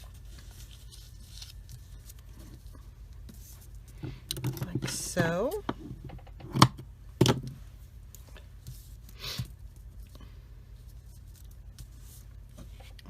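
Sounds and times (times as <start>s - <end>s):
soft rustle: 0.0s - 4.2s, 7.6s - 13.0s
faint low hum: 0.0s - 13.0s.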